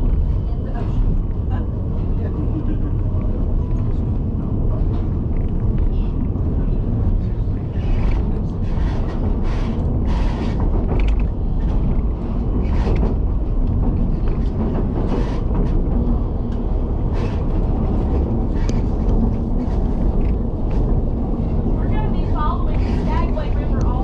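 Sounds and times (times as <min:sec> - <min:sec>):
railway car rumble: 0:00.0 - 0:24.0
wheels creaking and squealing: 0:07.6 - 0:11.8, 0:17.1 - 0:23.8.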